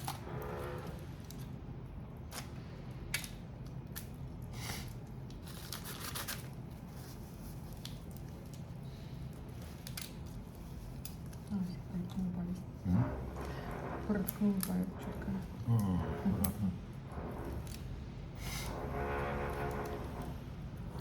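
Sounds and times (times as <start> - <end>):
shellfish shells cracking: 2.3 - 6.6, 9.4 - 11.4.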